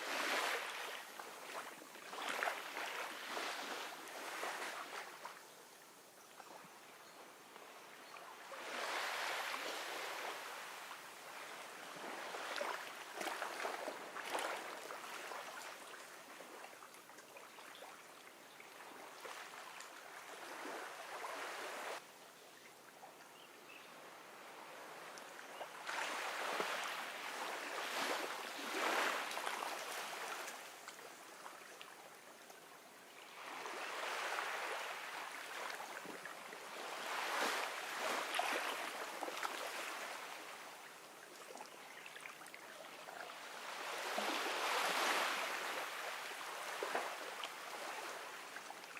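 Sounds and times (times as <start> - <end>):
ocean waves washing onto beach: 0.0 - 5.4, 8.5 - 16.6, 24.1 - 31.3, 33.3 - 40.9, 43.3 - 48.9.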